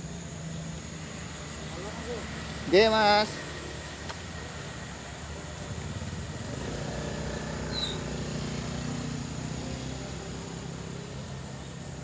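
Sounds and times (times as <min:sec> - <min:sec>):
motorcycle engine running: 0:04.4 - 0:12.0.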